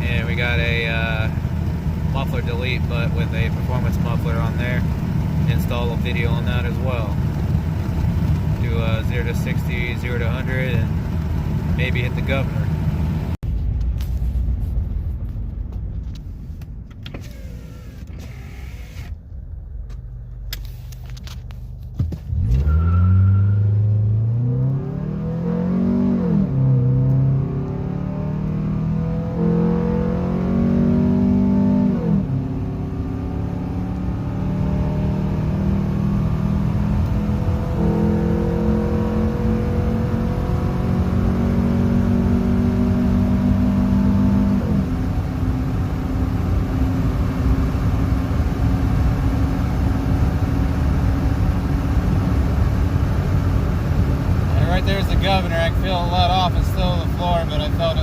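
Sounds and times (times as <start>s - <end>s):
car engine revving: 0.0s - 13.4s, 22.2s - 58.0s.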